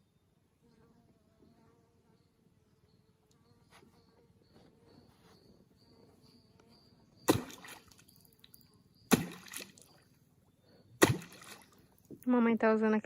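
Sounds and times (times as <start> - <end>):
sinker splashing on water: 7.3 - 8.3, 9.1 - 10.0, 11.0 - 12.2.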